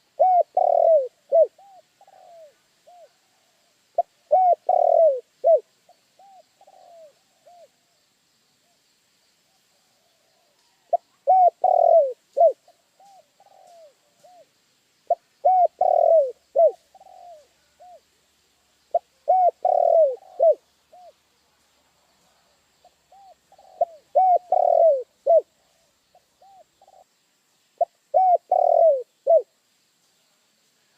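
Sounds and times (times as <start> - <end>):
dove cooing: 0.0 - 7.8, 10.0 - 14.5, 15.1 - 18.1, 18.9 - 21.2, 22.8 - 27.2, 27.8 - 29.6.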